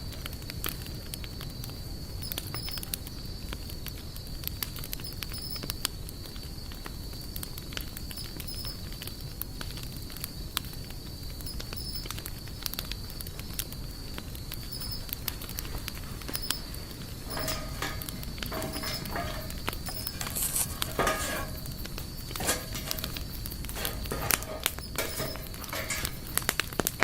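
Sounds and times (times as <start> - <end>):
campfire crackling and popping: 0.0 - 27.0
thin high tone: 14.8 - 15.0, 16.3 - 16.6, 17.3 - 21.6.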